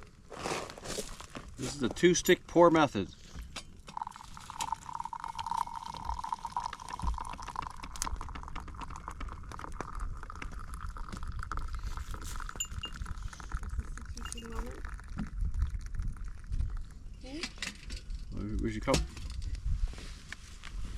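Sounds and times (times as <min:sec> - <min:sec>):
coffee pouring into a cup: 0:03.8 - 0:17.3.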